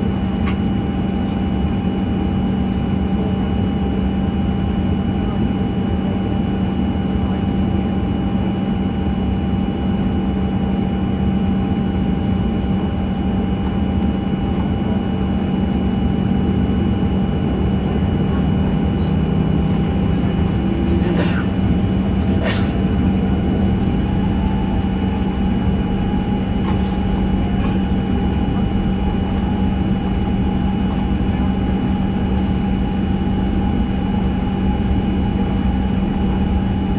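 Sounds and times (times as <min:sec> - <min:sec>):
airliner cabin drone: 0:00.0 - 0:36.9
thin whining tones: 0:20.8 - 0:22.9.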